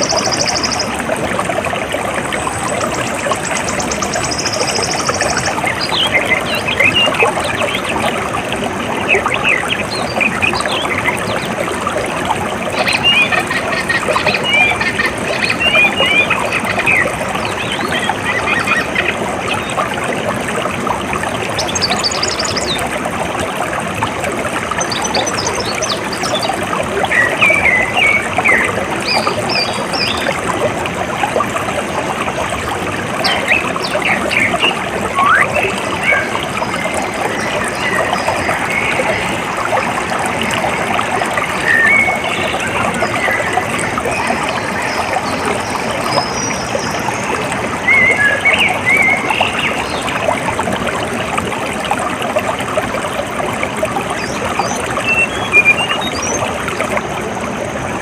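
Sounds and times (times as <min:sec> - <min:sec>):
water trickling and gurgling: 0:00.0 - 0:58.0
birds chirping: 0:33.2 - 0:50.0, 0:54.2 - 0:56.4.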